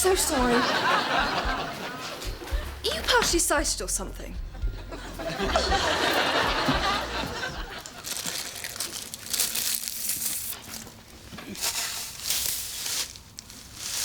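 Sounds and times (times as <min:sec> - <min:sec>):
rustling and crinkling handling: 0:06.7 - 0:14.0.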